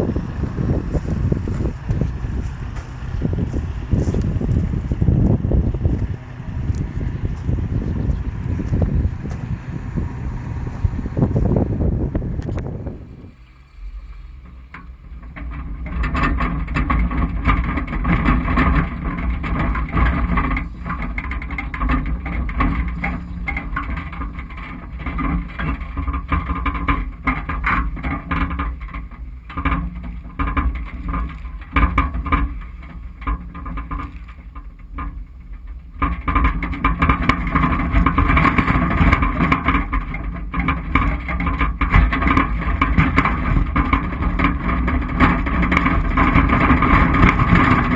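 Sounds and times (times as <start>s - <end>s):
body and suspension rattling: 0.0s - 10.1s, 10.7s - 47.9s
suv engine running: 0.0s - 47.9s.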